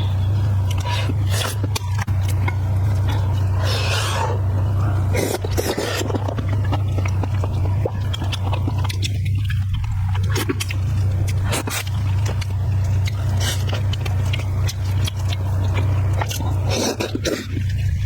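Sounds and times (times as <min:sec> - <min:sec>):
loud steady low hum: 0:00.0 - 0:18.0
person chewing food: 0:00.2 - 0:18.0.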